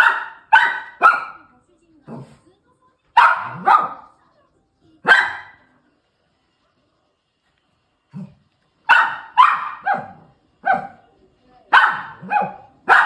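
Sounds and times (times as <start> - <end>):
small dog barking: 0.0 - 1.5, 3.2 - 4.1, 5.0 - 5.6, 8.2 - 11.0, 11.7 - 13.0.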